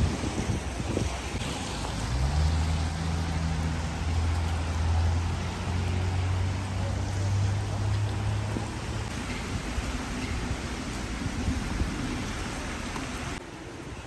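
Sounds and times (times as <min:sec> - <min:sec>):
vehicle engine humming: 0:00.0 - 0:13.4
rain hissing: 0:00.0 - 0:14.0.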